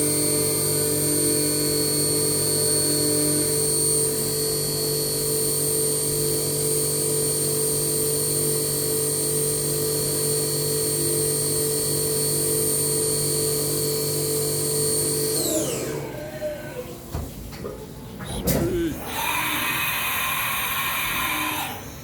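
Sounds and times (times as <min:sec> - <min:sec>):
milling machine whine: 0:18.3 - 0:22.0.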